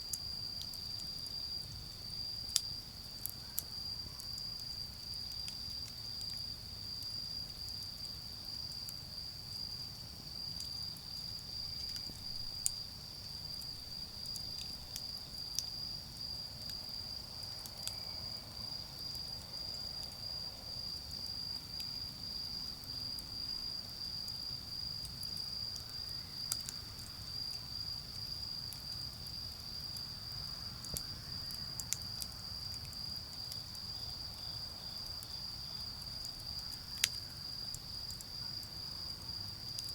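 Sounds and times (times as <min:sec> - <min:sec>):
crickets chirping chorus: 0:00.0 - 0:39.9
charcoal fire popping: 0:10.4 - 0:18.0.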